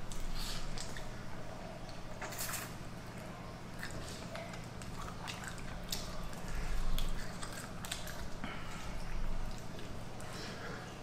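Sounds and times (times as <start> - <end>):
faint low hum: 0.0 - 11.0
person chewing: 3.7 - 10.3.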